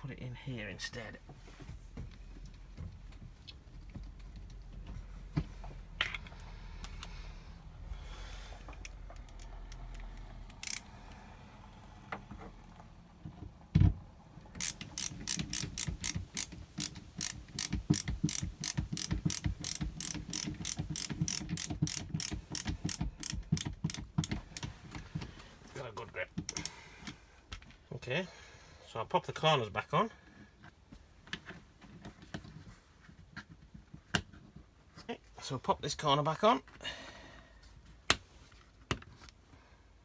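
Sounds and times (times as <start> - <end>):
ratcheting screwdriver clicking: 8.8 - 10.9, 14.6 - 24.7.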